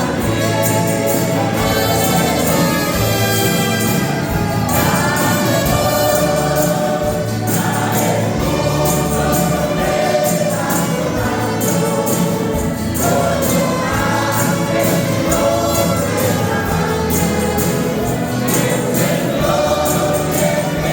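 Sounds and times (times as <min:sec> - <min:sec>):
instrumental accompaniment with beat: 0:00.0 - 0:20.9
men's choir singing gospel: 0:00.0 - 0:20.9.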